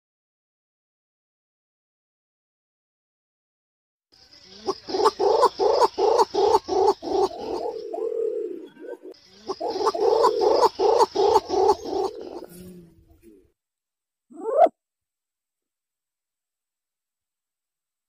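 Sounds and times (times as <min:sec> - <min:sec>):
pigeon cooing: 0:04.5 - 0:13.5, 0:14.3 - 0:14.7.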